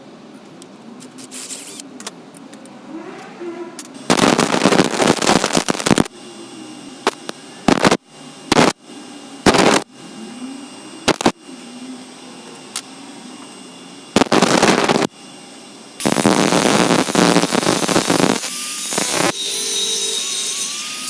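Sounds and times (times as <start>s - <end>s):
belt grinder grinding metal: 16.0s - 21.0s.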